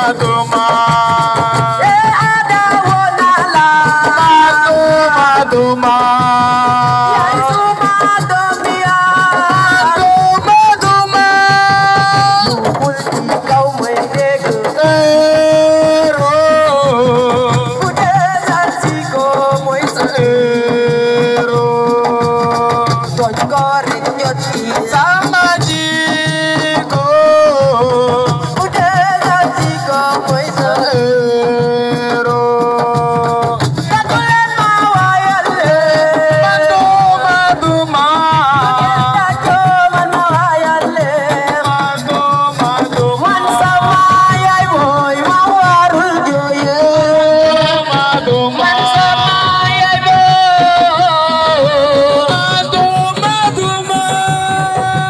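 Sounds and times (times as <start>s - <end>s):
hand drum percussion: 0.0s - 55.0s.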